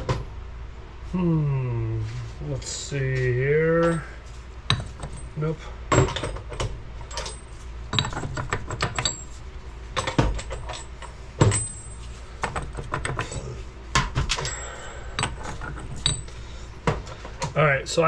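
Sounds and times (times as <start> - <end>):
hand tools clinking and clattering: 3.7 - 9.4, 10.0 - 17.6.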